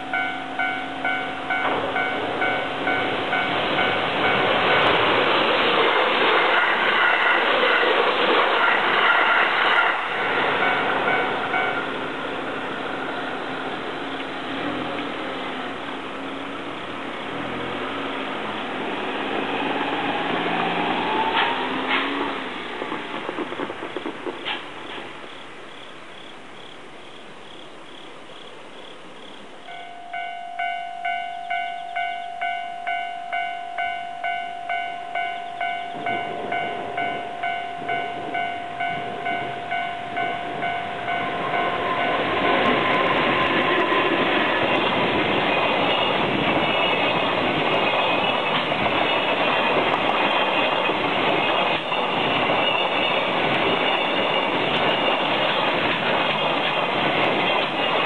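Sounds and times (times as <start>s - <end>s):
level-crossing alarm bell ringing: 0.0s - 5.0s, 10.5s - 12.0s, 29.7s - 43.5s, 44.1s - 58.0s
freight train passing: 0.0s - 28.0s, 28.8s - 58.0s.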